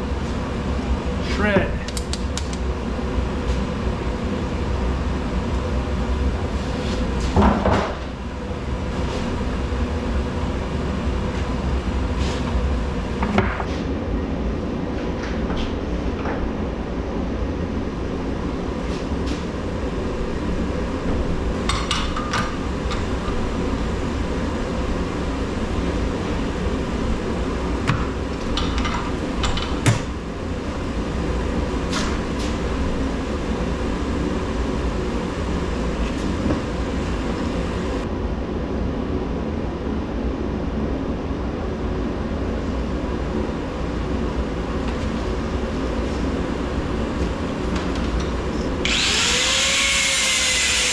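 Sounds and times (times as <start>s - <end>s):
steady mechanical rumble: 0.0s - 50.9s
sharp knocks and clanks: 21.7s - 23.4s.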